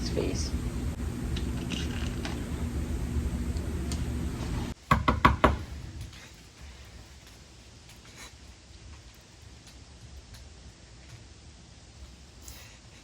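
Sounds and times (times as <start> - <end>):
steady low hum: 0.0 - 13.0
knocks on a door: 4.9 - 5.7.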